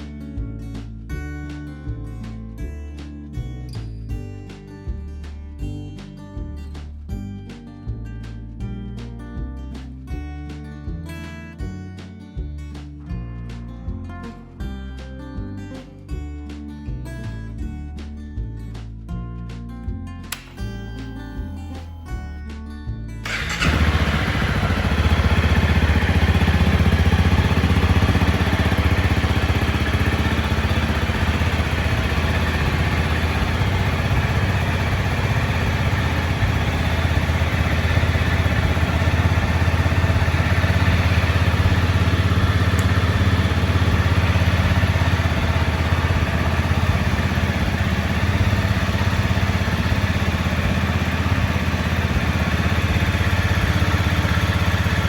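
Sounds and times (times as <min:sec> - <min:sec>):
motorcycle engine idling: 0:23.2 - 0:55.0.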